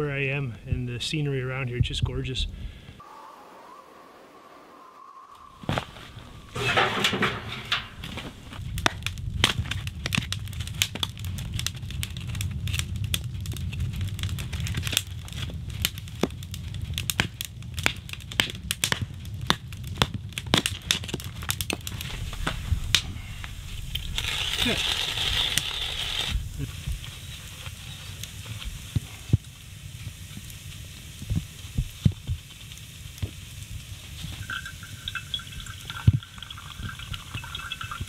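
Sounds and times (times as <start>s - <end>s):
steady low rumble: 3.9s - 32.5s
wood cracking and splintering: 6.6s - 29.3s
loud wood crunch: 13.5s - 27.8s.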